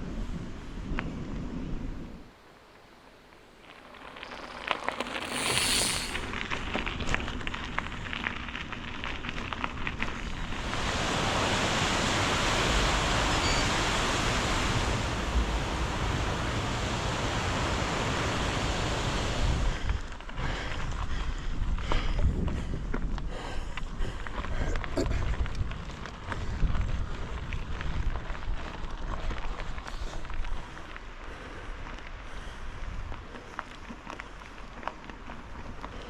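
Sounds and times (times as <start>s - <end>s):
crackling and ticking: 3.2s - 10.7s
loud rushing noise: 5.0s - 6.3s, 10.6s - 19.8s.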